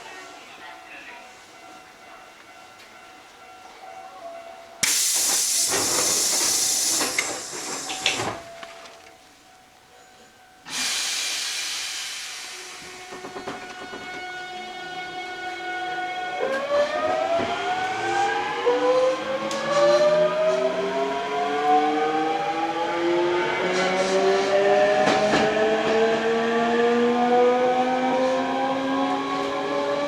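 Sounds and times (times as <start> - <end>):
wheels clicking over rail joints: 4.8 - 9.2
train inverter tones climbing in pitch: 12.5 - 30.0.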